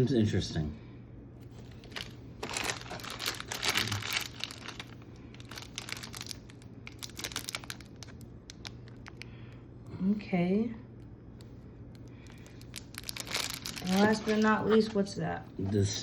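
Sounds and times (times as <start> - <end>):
plastic packaging crinkling: 1.6 - 9.3, 11.9 - 15.0.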